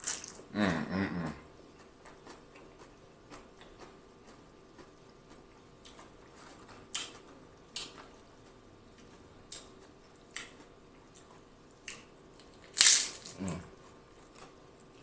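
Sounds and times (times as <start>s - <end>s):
chewing chips with mouth closed: 0.0s - 0.6s, 10.3s - 15.0s.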